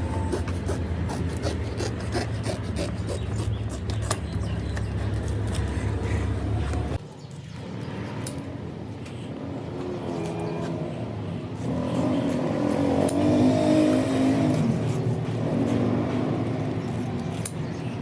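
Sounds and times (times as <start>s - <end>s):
engine running and revving: 9.6s - 17.6s.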